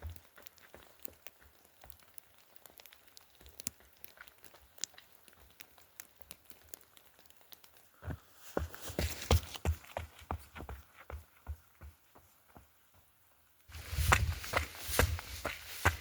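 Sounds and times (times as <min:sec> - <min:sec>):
footsteps on trail: 0:00.0 - 0:06.2, 0:07.9 - 0:16.0
faint rain ticks: 0:00.0 - 0:11.5.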